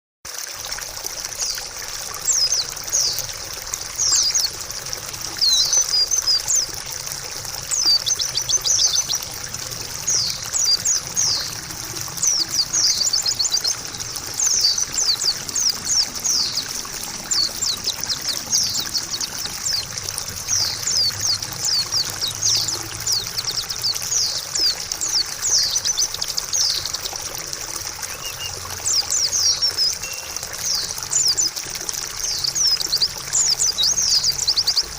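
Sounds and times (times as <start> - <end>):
water trickling: 0.3 - 34.9
bird chirping: 5.4 - 6.7, 7.7 - 9.3, 9.9 - 27.1, 28.1 - 31.6.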